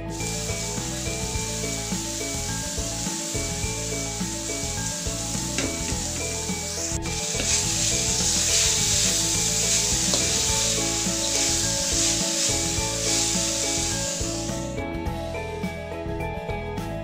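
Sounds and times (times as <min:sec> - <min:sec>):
food sizzling in a wok: 0:00.0 - 0:14.8
soft background music: 0:00.0 - 0:17.0
spatula scraping a wok: 0:05.4 - 0:14.6.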